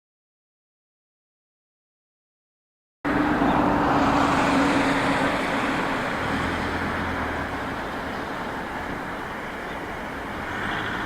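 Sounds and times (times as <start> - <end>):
jet engine roar: 3.1 - 11.0.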